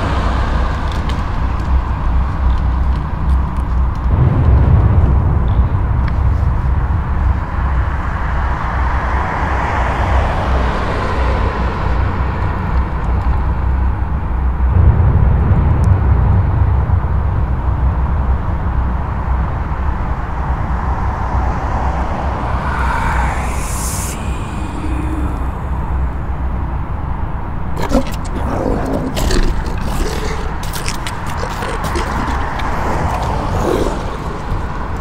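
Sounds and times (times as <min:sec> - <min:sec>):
traffic rumble: 0:00.0 - 0:35.0
car passing: 0:07.3 - 0:13.0, 0:19.0 - 0:27.0, 0:32.2 - 0:35.0.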